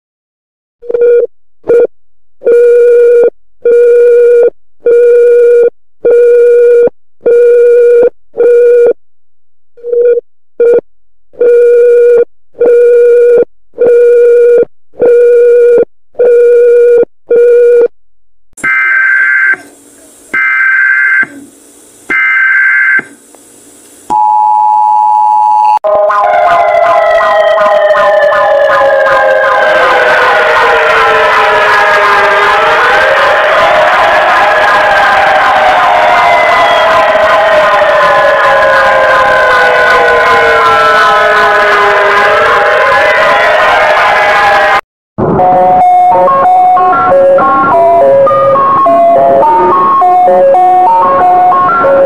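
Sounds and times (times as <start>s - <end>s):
falling siren-like wail: 25.8s - 52.0s
low electronic beeps: 45.2s - 52.0s
steady electronic tone: 45.2s - 52.0s.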